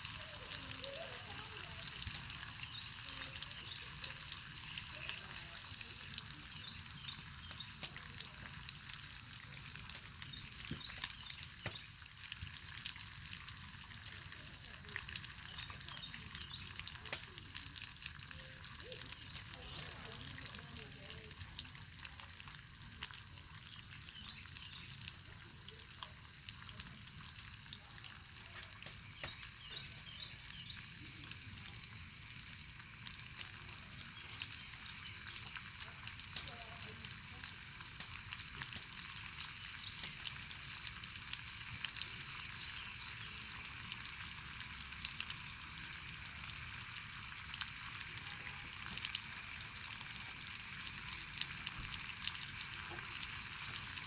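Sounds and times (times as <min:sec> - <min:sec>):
bacon sizzling: 0:00.0 - 0:54.0
small pops and crackles: 0:07.4 - 0:12.9, 0:16.8 - 0:17.8, 0:28.5 - 0:30.2, 0:33.3 - 0:36.6, 0:37.8 - 0:40.6.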